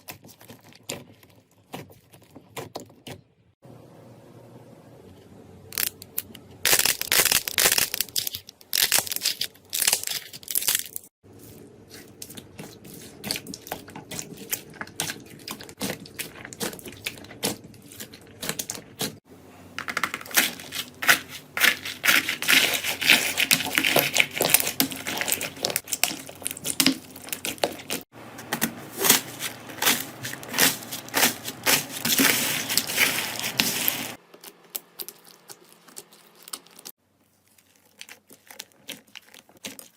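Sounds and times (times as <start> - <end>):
slime crackling and popping: 6.7 - 11.1.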